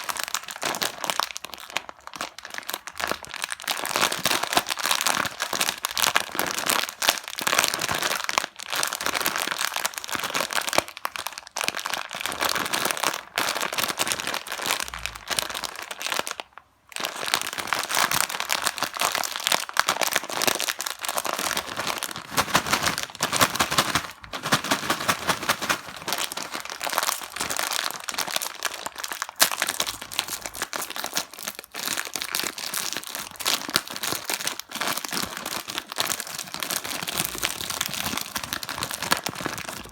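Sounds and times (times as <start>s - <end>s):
plastic wrappers crinkling: 17.0s - 39.9s.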